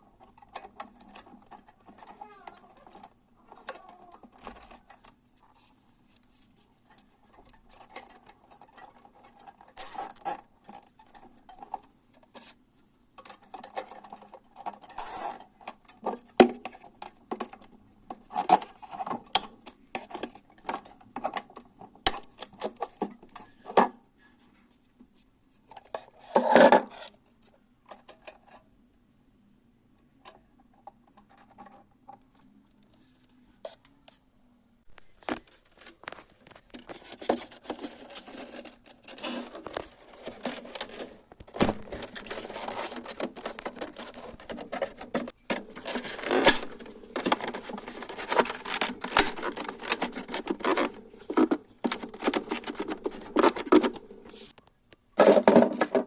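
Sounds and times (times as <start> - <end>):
small tools clicking and scraping: 0.2 - 12.6, 13.2 - 23.9, 34.9 - 54.6.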